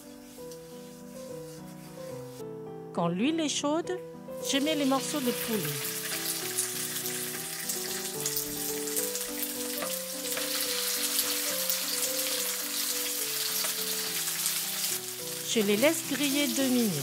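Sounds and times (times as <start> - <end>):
gentle background music: 0.0 - 17.0
chicken sizzling in a frying pan: 4.4 - 17.0.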